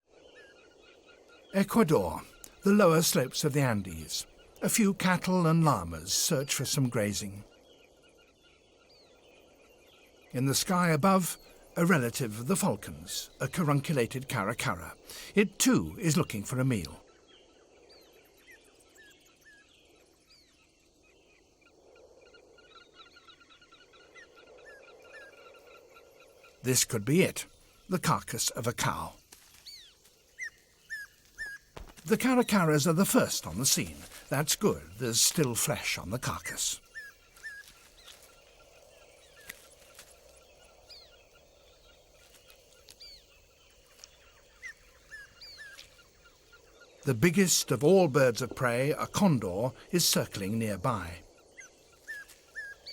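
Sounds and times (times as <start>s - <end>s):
birds chirping: 0.0s - 52.9s
background hiss: 17.7s - 52.9s.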